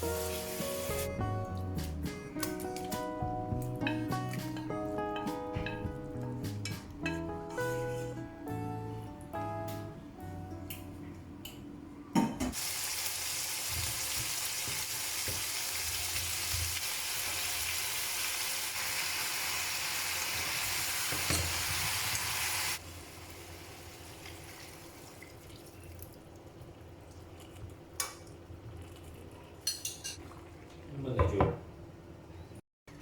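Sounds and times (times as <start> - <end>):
food sizzling in hot oil: 0.0 - 1.1, 12.6 - 25.2
kitchenware clinking: 21.1 - 21.8, 29.6 - 30.2.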